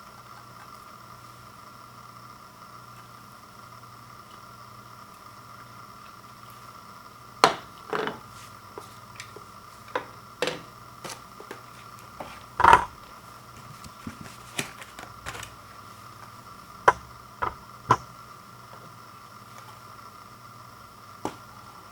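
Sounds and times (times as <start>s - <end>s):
faint steady hum: 0.0s - 21.9s
objects being handled: 13.6s - 15.6s.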